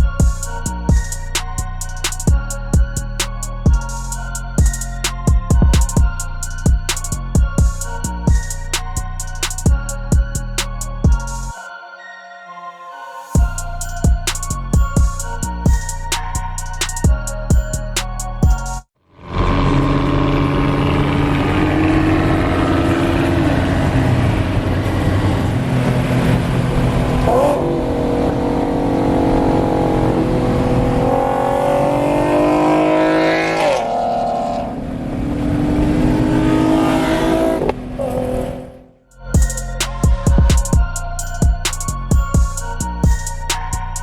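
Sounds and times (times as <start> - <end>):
car engine accelerating hard: 19.1 - 39.0.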